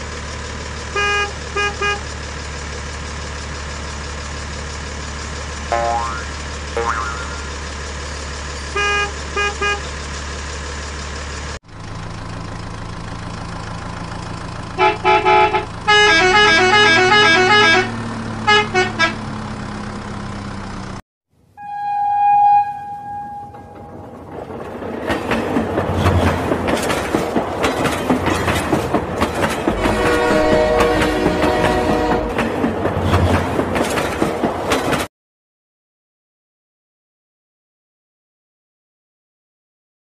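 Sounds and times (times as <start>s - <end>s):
electronic horn beeps: 1.0s - 2.1s, 8.7s - 9.9s, 14.8s - 17.9s, 18.5s - 19.2s, 21.5s - 23.9s, 29.8s - 32.4s.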